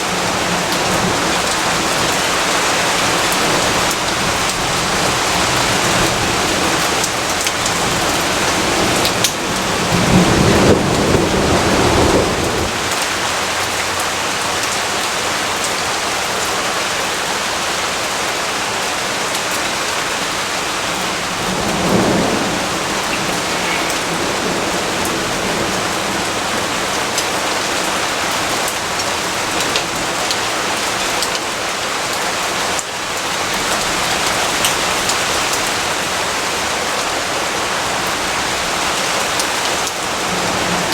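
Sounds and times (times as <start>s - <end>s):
steady rainfall: 0.0s - 40.9s
thunder rolling: 0.2s - 13.5s, 20.4s - 27.6s.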